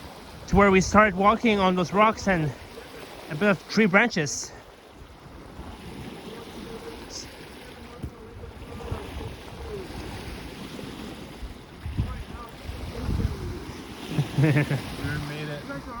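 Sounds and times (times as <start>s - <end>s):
lake waves on shore: 0.0s - 16.0s
wind rumbling on microphone: 4.9s - 16.0s
faint voices: 6.1s - 10.6s, 11.7s - 16.0s
soft thumps: 7.9s - 8.3s.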